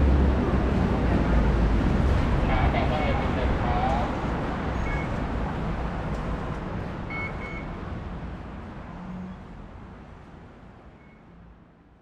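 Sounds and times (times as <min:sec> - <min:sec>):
train car rumbling: 0:00.0 - 0:07.5
short high beeps: 0:07.1 - 0:07.7.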